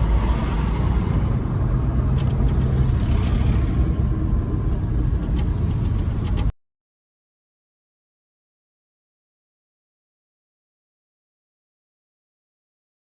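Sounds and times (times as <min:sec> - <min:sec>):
truck driving rumble: 0:00.0 - 0:06.5.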